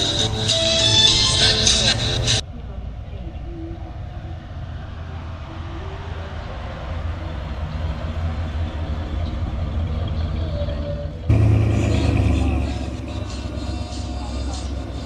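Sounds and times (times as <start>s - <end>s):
car engine running: 11.3s - 15.0s.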